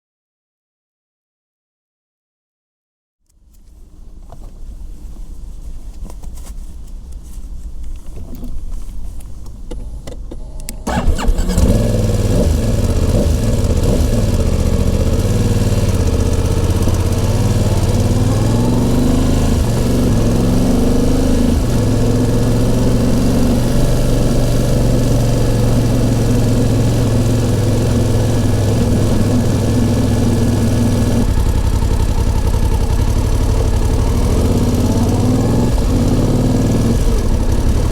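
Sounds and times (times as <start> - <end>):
motorcycle engine starting and idling: 9.7 - 37.9.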